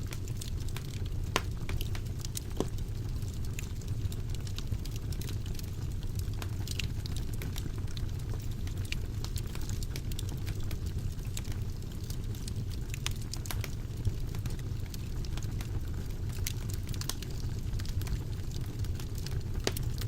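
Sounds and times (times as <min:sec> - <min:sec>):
wood fire crackling and popping: 0:00.0 - 0:20.0.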